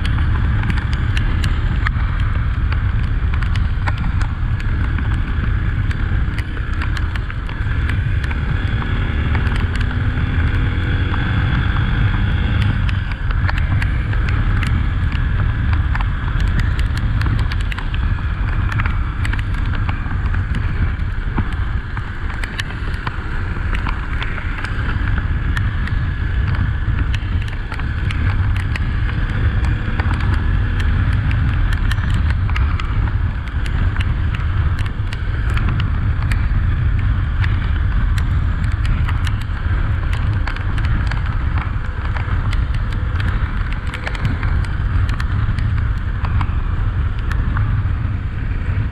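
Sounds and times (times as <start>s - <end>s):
motorcycle engine: 0.0s - 48.9s
wind rumble on microphone: 0.0s - 48.9s
sharp clicks: 23.7s - 46.5s.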